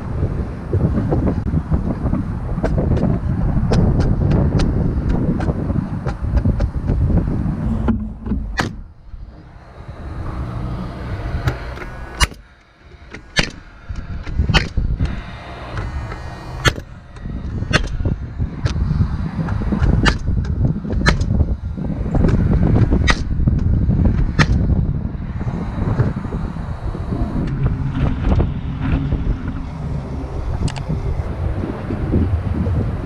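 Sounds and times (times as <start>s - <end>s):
low rumble: 0.0s - 33.0s
nail gun firing: 13.4s - 13.6s.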